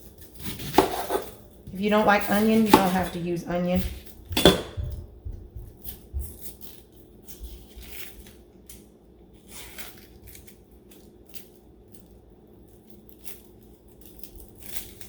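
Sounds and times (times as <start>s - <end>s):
knife cutting onion on board: 0.2s - 5.1s.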